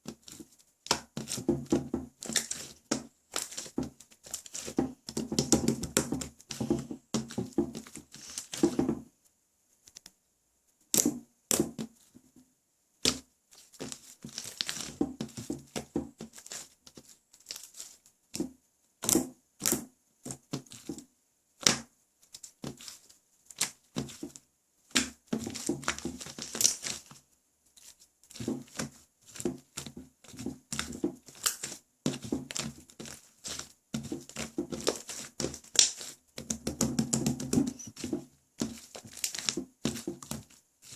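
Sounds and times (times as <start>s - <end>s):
slime clicking and popping: 33.4s - 38.0s.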